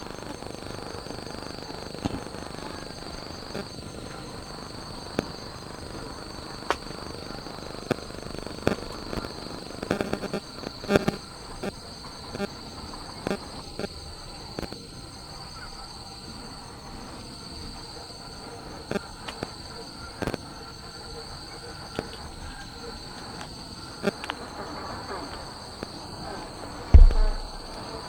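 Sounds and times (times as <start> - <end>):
night insects chirring: 0.0 - 28.0
raindrops tapping on tent: 27.0 - 27.7
heavy low thump: 27.0 - 27.8.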